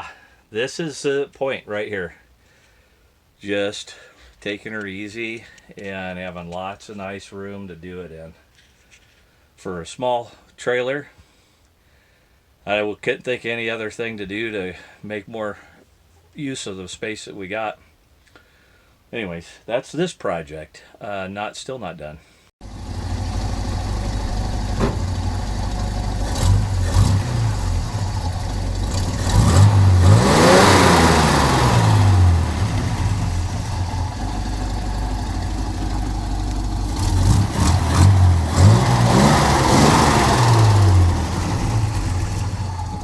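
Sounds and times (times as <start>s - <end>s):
engine revving: 22.6s - 43.0s.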